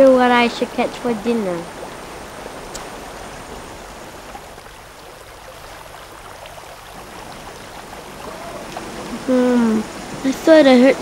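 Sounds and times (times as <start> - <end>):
stream running water: 0.0 - 11.0
faint clicks: 2.7 - 3.0.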